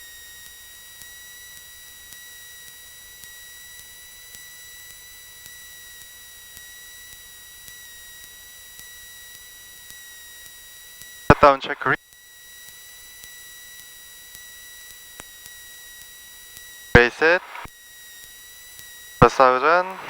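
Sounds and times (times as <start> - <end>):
electrical whine: 17.0 - 17.7, 19.2 - 20.0
faint hiss: 17.0 - 17.7.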